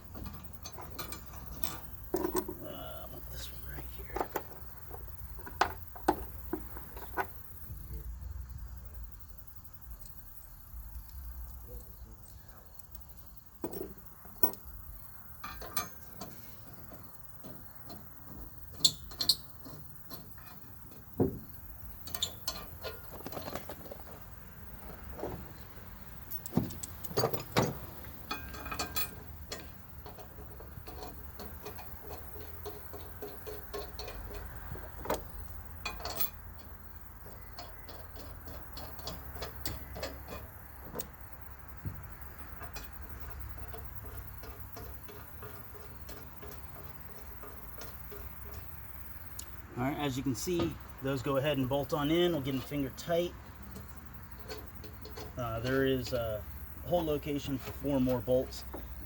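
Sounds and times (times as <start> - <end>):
bolts clinking against metal plate: 0.0 - 7.7, 12.7 - 59.0.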